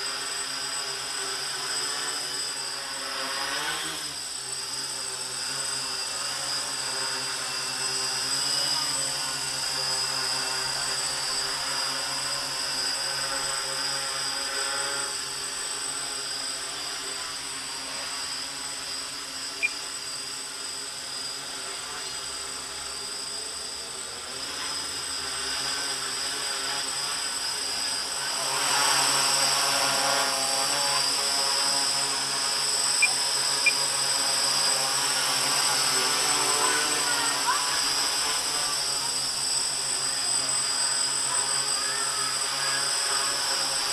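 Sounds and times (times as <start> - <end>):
drone propellers buzzing: 0.0 - 43.9.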